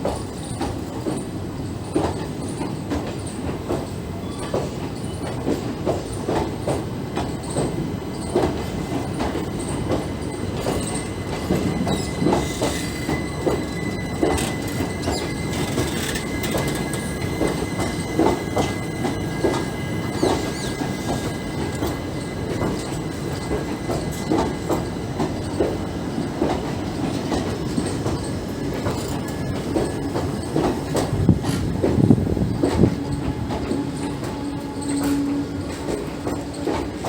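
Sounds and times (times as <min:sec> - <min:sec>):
train wheels clickety-clack: 0:00.0 - 0:37.0
wheels squealing: 0:09.6 - 0:31.6.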